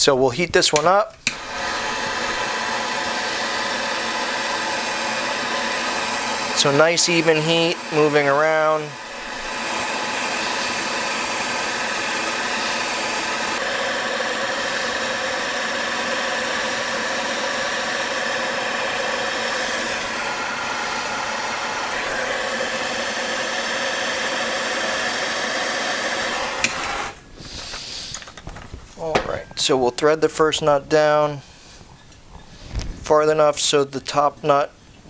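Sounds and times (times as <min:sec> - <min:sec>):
heat gun blowing hiss: 0:00.1 - 0:34.7
switch click: 0:00.7 - 0:01.5.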